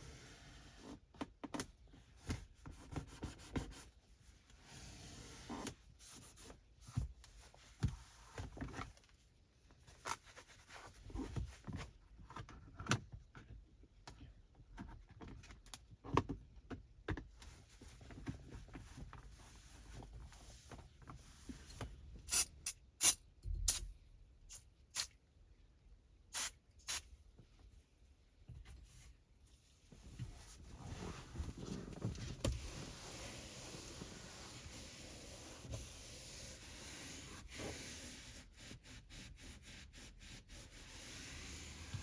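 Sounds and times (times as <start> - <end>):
cloth wiping surfaces: 18.7 - 21.8, 28.9 - 42.0.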